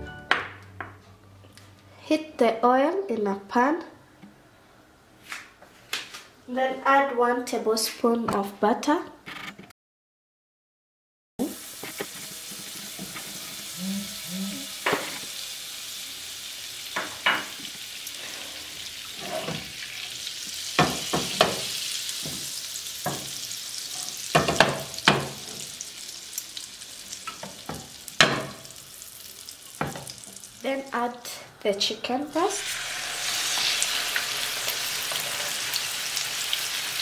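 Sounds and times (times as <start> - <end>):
butter sizzling in frying pan: 11.4 - 30.8, 32.4 - 37.0.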